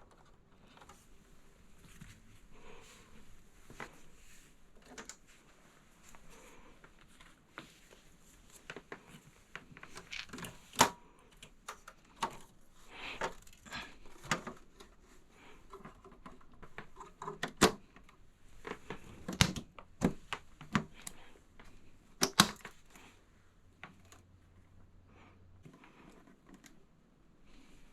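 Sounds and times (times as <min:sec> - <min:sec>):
rustling: 0:00.0 - 0:17.0.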